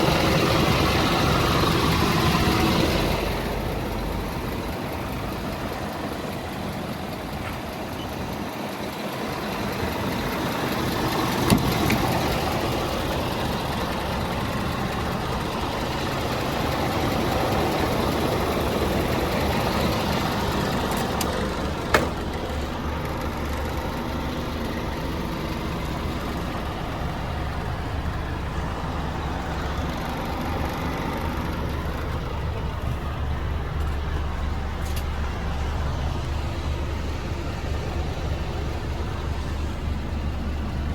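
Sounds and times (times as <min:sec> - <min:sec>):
truck diesel engine idling: 0:00.0 - 0:40.9.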